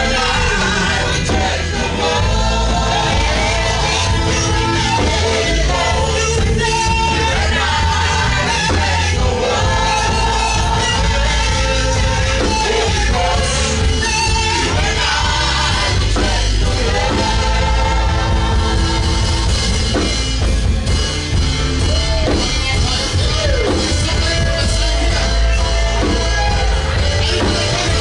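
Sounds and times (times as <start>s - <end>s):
band playing worship music: 0.0s - 28.0s
voices singing: 0.0s - 28.0s.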